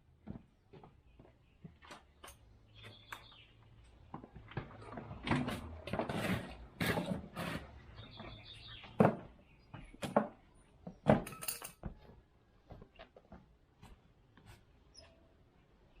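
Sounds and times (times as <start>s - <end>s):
objects knocking and clicking: 10.0s - 12.1s.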